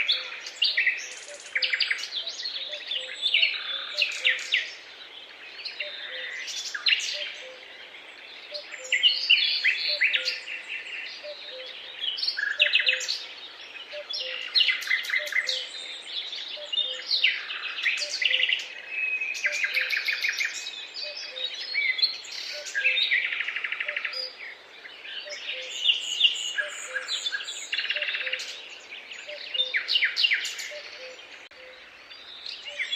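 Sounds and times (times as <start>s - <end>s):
songbirds singing: 0.0s - 32.9s.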